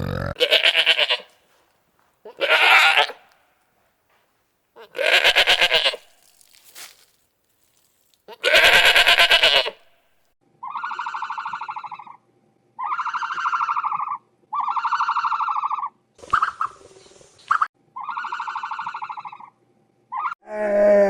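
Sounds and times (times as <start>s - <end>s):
animal buzzy calls: 10.6s - 12.2s, 12.8s - 16.8s, 17.5s - 19.5s
animal harsh call: 12.8s - 16.7s, 18.0s - 19.5s.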